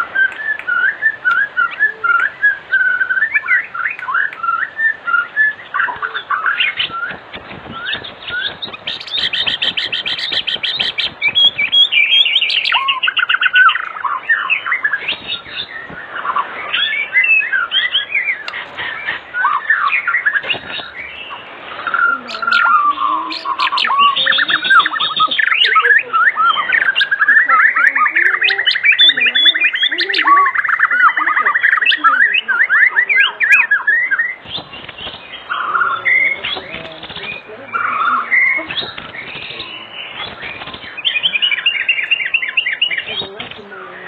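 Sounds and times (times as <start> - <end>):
bird singing whistled phrases: 0.0 - 43.7
bird chattering: 0.0 - 44.0
bird trilling: 0.0 - 44.0.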